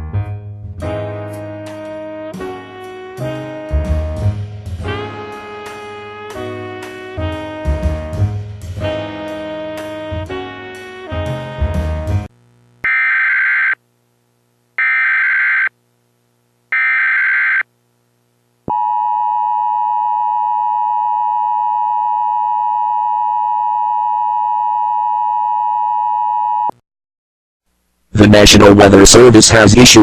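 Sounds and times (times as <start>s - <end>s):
digital data bursts: 12.8s - 13.8s, 14.8s - 15.7s.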